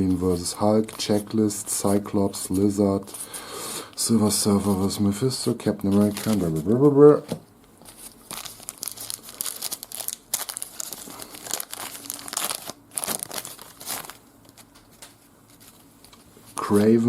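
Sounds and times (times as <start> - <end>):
wrapper tearing and crinkling: 5.6 - 6.8, 7.9 - 16.1.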